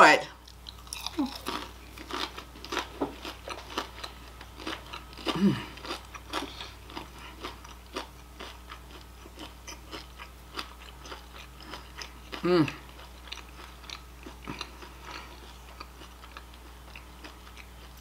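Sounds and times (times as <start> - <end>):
chewing crunchy food: 0.4 - 18.0
person humming mmm: 1.1 - 1.5, 5.3 - 5.8, 12.4 - 12.9.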